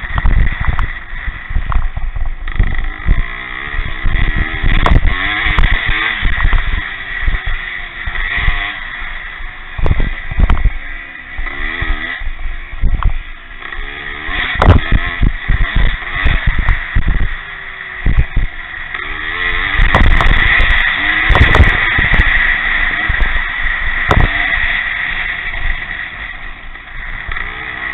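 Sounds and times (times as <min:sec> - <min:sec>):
motocross motorcycles revving: 0:00.0 - 0:27.9
wind buffeting microphone: 0:09.8 - 0:10.8, 0:14.6 - 0:18.6, 0:19.6 - 0:22.3, 0:23.0 - 0:24.4.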